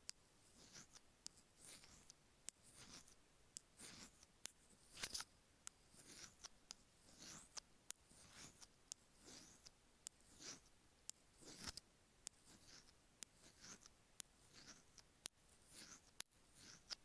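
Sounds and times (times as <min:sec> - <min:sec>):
metal pick scraping earphone grooves: 0:15.7 - 0:17.0.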